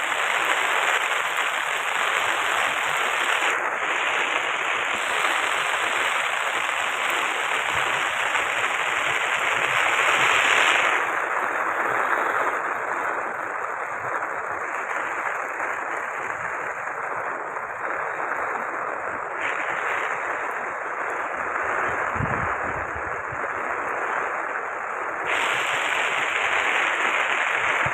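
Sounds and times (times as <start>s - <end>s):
floodwater rushing roar: 0.0s - 11.9s, 19.2s - 24.0s, 24.6s - 27.9s.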